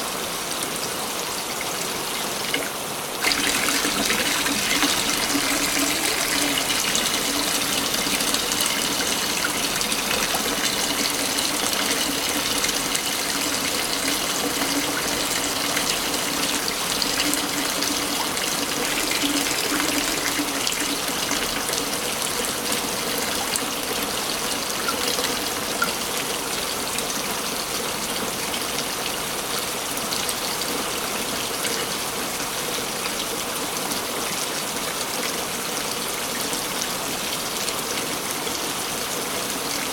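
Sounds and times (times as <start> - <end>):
waterfall splashing: 1.1 - 21.6.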